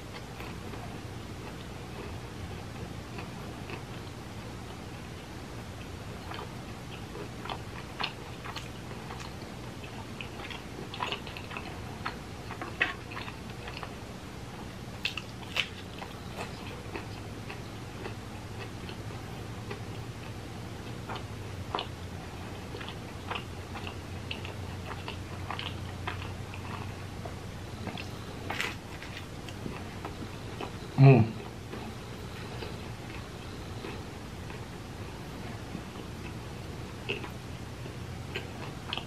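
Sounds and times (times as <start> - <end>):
faint low hum: 0.0 - 39.0
person chewing pizza: 0.0 - 39.0.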